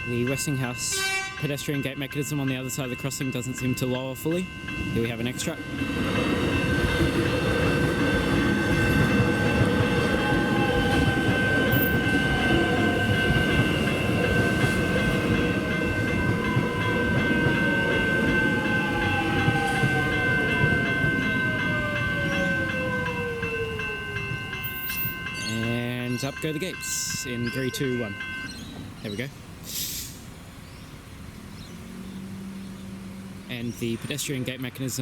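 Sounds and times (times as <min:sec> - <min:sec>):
level crossing bells ringing: 0:00.0 - 0:29.4
train wheels rumbling on rails: 0:00.0 - 0:32.2
train whine falling in pitch: 0:05.7 - 0:25.5.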